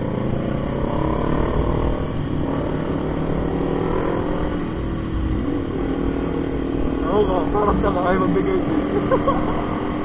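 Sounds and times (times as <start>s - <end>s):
road noise: 0.0s - 10.0s.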